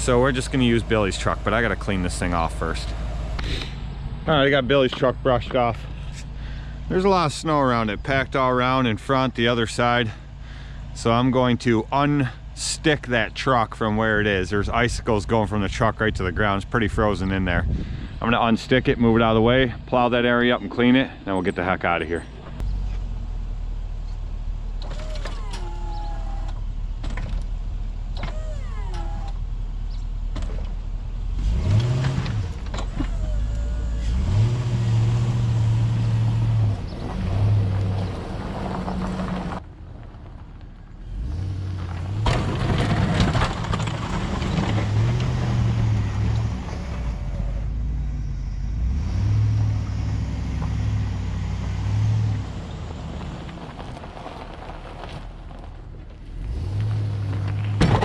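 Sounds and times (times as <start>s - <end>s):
pickup truck engine revving: 0.0s - 4.6s, 31.3s - 39.6s, 41.0s - 54.6s, 56.3s - 58.0s.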